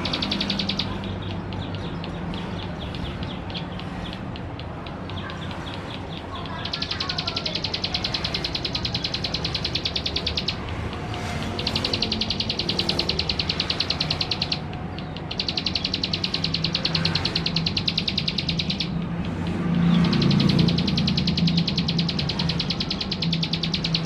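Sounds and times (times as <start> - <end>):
bird singing ticking trills: 0.0 - 24.0.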